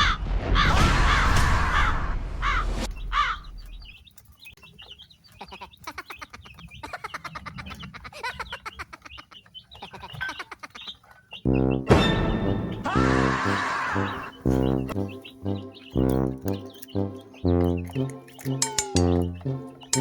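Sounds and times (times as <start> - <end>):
chicks peeping: 2.9 - 20.0
loud harsh calls: 11.5 - 20.0.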